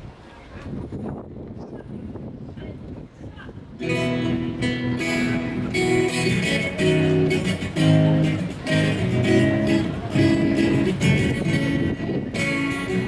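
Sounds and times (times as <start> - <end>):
guitar strumming chords: 3.8 - 13.0.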